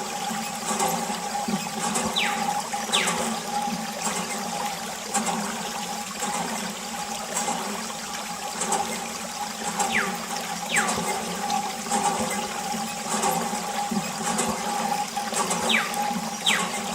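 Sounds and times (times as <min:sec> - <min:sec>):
water pouring and splashing: 0:00.0 - 0:16.9
falling whistles: 0:02.1 - 0:03.3, 0:09.8 - 0:11.6, 0:15.6 - 0:16.9.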